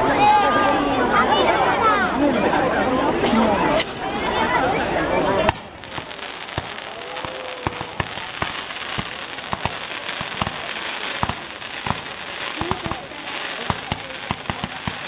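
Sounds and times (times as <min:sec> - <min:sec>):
fireworks hissing and crackling: 0:03.3 - 0:15.0.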